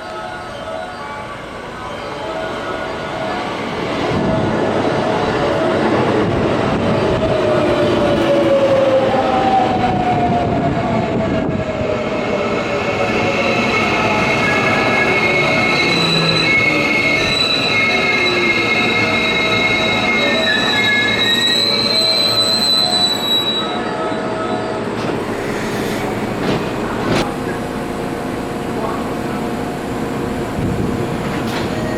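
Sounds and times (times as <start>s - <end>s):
train brakes squealing: 12.3s - 26.2s.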